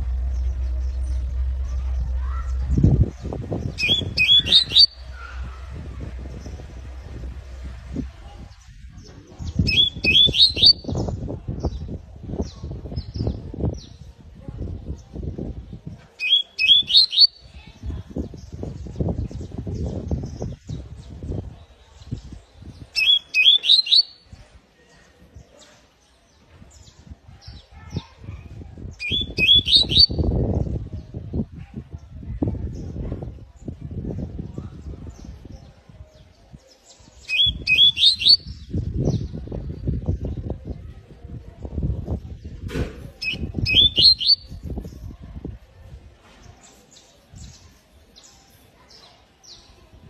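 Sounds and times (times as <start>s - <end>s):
canary chirping: 0.0s - 7.7s, 9.5s - 11.0s, 16.2s - 17.4s, 29.0s - 30.2s, 37.2s - 38.7s, 43.2s - 44.6s
low thumps: 0.0s - 9.7s.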